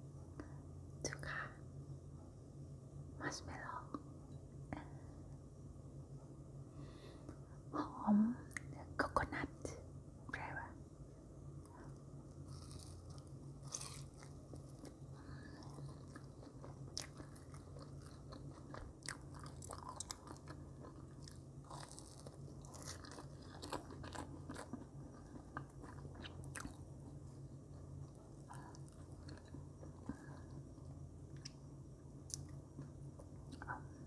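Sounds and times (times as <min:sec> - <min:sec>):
steady low hum: 0:00.0 - 0:34.0
person chewing marshmallows: 0:11.6 - 0:31.6.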